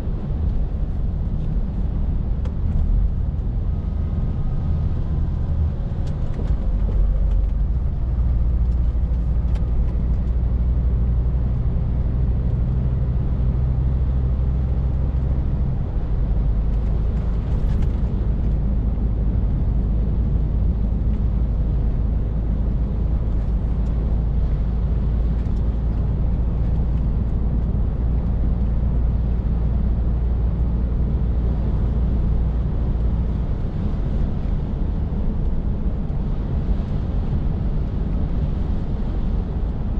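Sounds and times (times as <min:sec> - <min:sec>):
lorry diesel engine drone: 0:00.0 - 0:39.9
tyre and road noise: 0:00.0 - 0:39.9.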